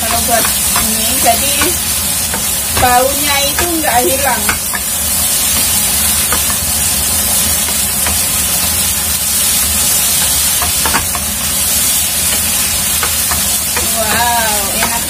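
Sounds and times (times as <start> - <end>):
wooden spatula knocking pan: 0.0 - 4.9, 5.5 - 6.7, 10.1 - 11.3, 12.2 - 15.0
noodles sizzling in a pan: 0.0 - 15.0.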